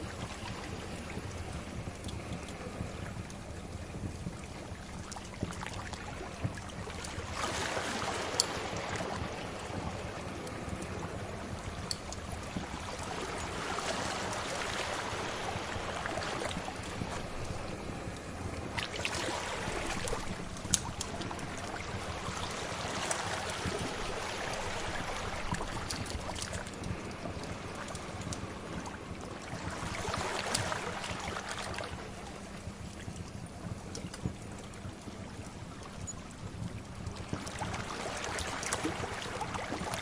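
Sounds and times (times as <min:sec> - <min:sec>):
sea waves washing in: 0:04.0 - 0:33.0.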